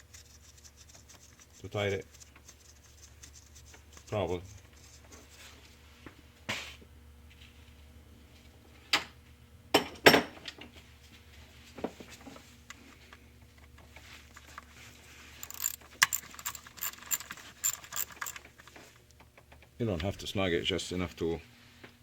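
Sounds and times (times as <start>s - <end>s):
metal tool clinks: 15.4s - 18.4s
hand ratchet clicking: 15.4s - 18.6s.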